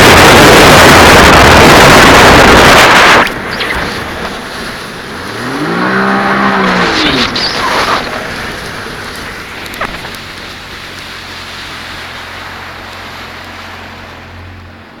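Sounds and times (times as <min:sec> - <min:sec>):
water and wind hiss: 0:00.0 - 0:15.0
jet ski engine idling: 0:07.5 - 0:15.0.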